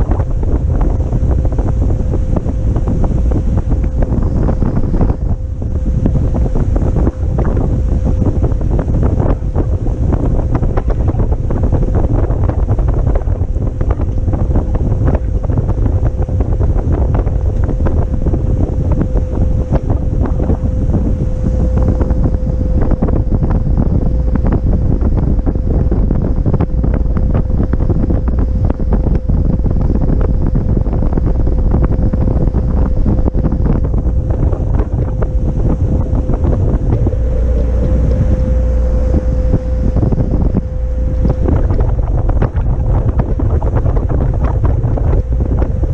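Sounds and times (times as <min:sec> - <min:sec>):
wind buffeting microphone: 0:00.0 - 0:45.9
steady single tone: 0:18.1 - 0:25.6, 0:31.5 - 0:43.2.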